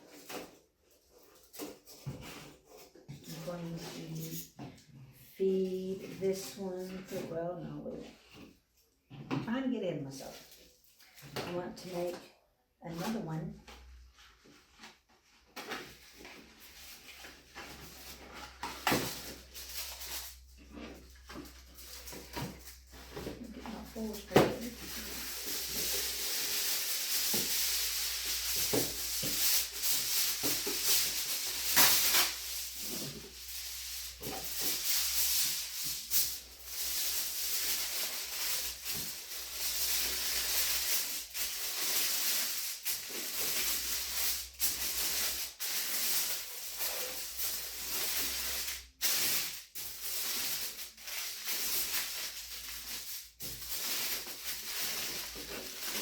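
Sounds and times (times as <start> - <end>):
sheet crinkling and rustling: 13.7 - 56.0.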